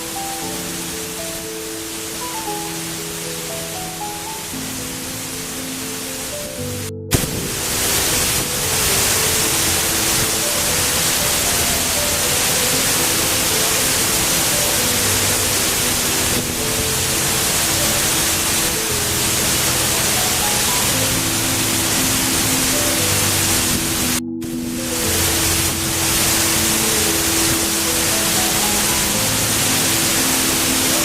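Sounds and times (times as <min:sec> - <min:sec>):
slow held-note music: 0:00.0 - 0:31.0
waterfall rushing: 0:00.0 - 0:31.0.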